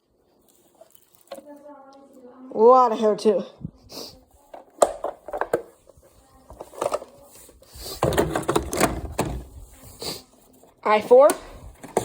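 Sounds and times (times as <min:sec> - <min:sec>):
plastic rattling and rustling: 0:04.5 - 0:09.8, 0:11.1 - 0:12.0
plastic clicks and knocks: 0:08.0 - 0:09.5.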